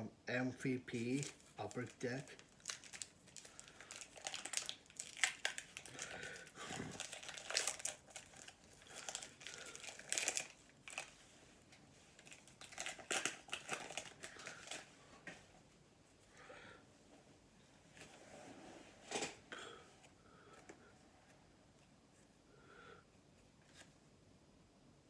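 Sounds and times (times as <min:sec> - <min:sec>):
card pack wrapper crinkling: 0:00.9 - 0:11.2, 0:12.2 - 0:14.9.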